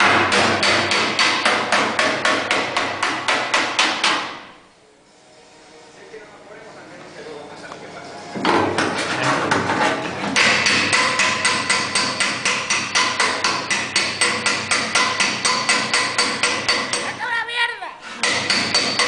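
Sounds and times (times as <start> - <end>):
hammer striking sheet steel: 0.0 - 4.6, 8.4 - 17.1, 18.1 - 19.0.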